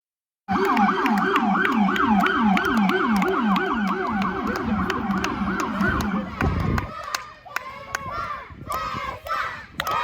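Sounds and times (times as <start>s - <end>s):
police siren yelping: 0.5s - 6.6s.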